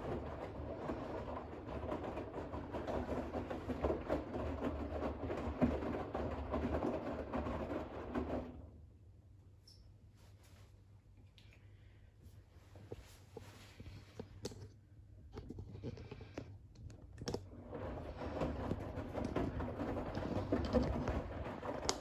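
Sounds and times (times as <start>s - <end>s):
water sloshing in washing machine: 0.0s - 8.8s, 17.4s - 22.0s.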